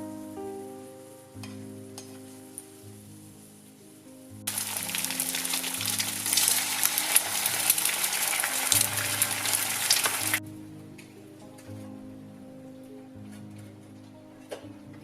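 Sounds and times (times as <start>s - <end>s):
soft background music: 0.0s - 15.0s
food sizzling in frying pan: 4.5s - 10.4s.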